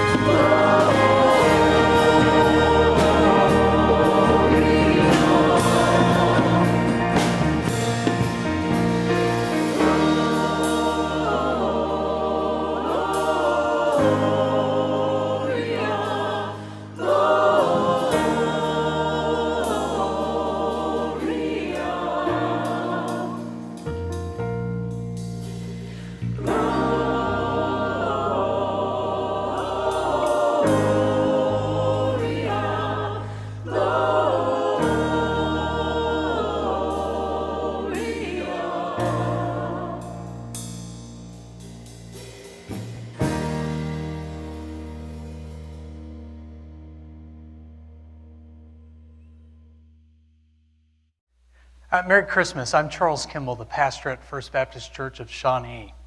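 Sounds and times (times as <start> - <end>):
choir singing with instruments: 0.0 - 24.2, 25.4 - 45.8.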